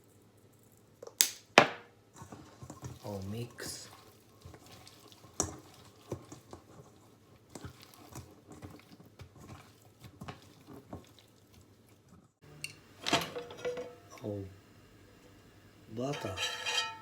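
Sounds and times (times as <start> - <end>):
wet squishing of meat in marinade: 2.2 - 12.2.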